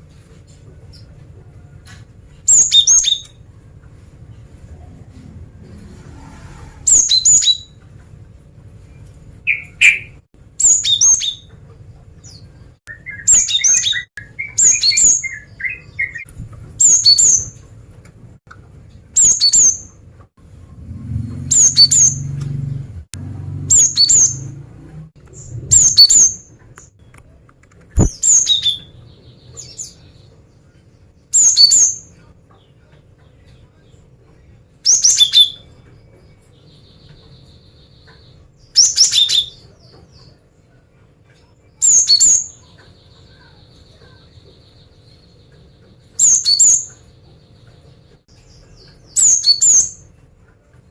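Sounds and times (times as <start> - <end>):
bird twittering phrase: 9.5 - 11.5, 21.4 - 22.4, 23.7 - 24.5, 25.4 - 26.5.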